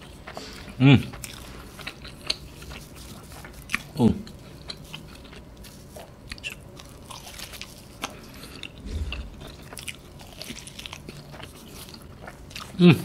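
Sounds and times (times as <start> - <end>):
person chewing pizza: 0.0 - 13.0
dull low thump: 8.8 - 9.8.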